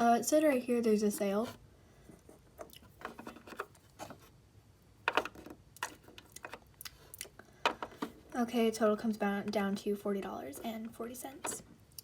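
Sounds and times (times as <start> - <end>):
small objects clicking and tapping: 5.0 - 8.1.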